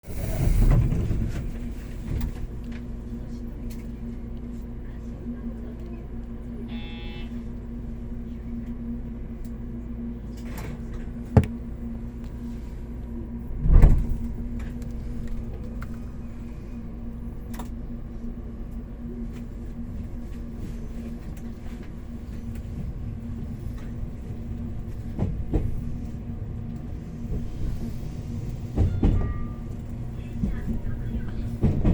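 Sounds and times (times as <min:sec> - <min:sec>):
train equipment humming: 0:00.0 - 0:31.9
short electronic tone: 0:06.7 - 0:07.3
sliding doors thumping shut: 0:13.6 - 0:14.3.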